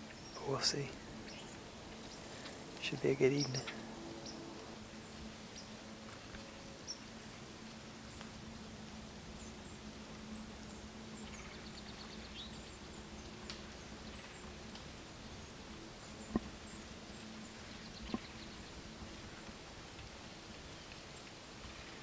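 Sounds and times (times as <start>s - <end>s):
small birds chirping: 0.0s - 7.2s, 9.3s - 19.6s.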